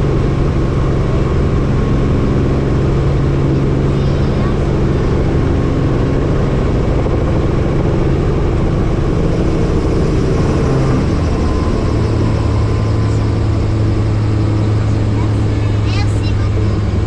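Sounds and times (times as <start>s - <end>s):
helicopter engine and rotor: 0.0s - 17.0s.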